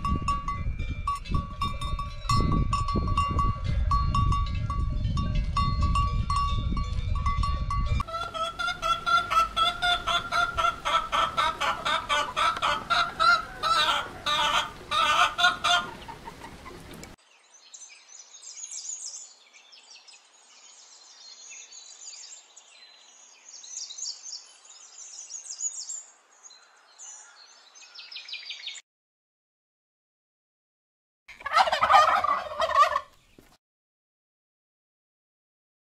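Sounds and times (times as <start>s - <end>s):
hens clucking: 8.0s - 17.2s, 31.3s - 33.2s
birds chirping and twittering: 8.0s - 28.8s.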